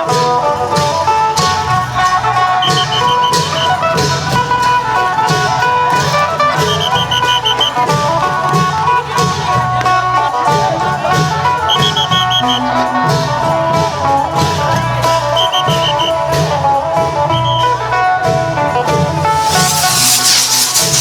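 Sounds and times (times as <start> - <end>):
cymbals keeping a beat: 0.0 - 21.0
long drums: 0.0 - 21.0
plucked lute fast melody: 0.0 - 21.0.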